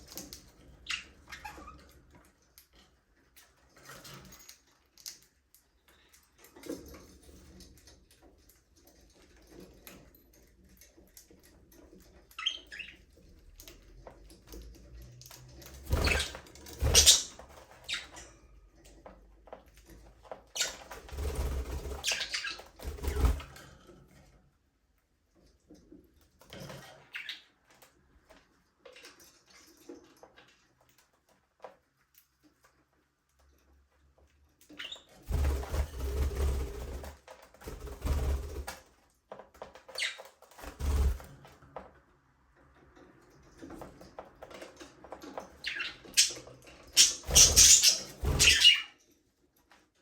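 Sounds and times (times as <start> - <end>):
wings flapping and scuffling: 14.5 - 18.4, 19.9 - 23.9, 34.8 - 41.9, 43.6 - 48.8.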